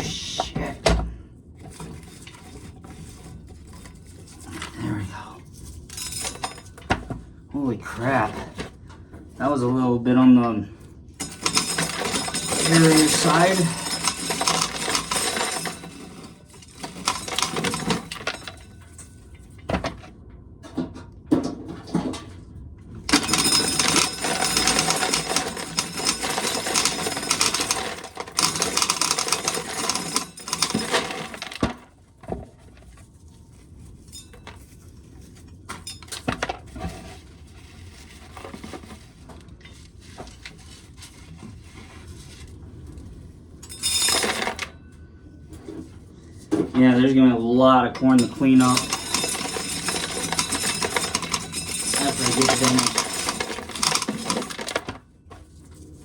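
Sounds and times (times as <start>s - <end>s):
corn kernels rattling down: 11.3s - 18.5s, 48.2s - 54.8s.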